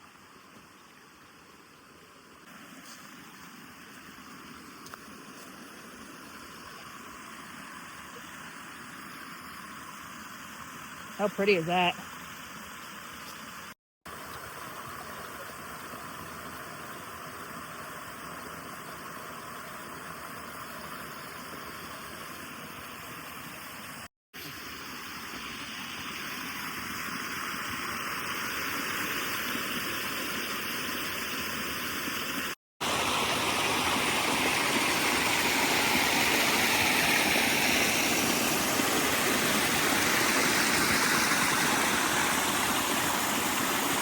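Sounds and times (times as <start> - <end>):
waterfall rushing: 32.8 - 44.0.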